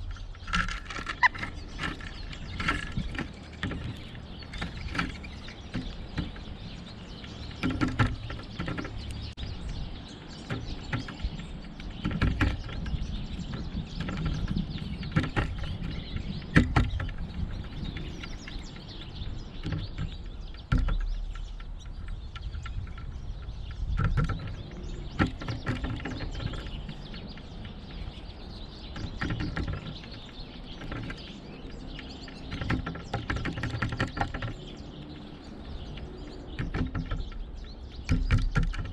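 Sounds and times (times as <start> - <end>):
birds chirping: 0.0 - 38.9
sharp knocks: 36.0 - 38.9.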